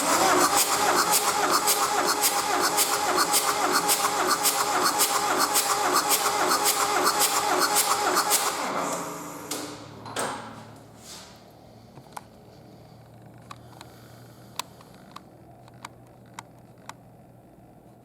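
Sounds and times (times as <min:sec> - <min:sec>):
diesel engine shutting down: 0:00.0 - 0:10.0.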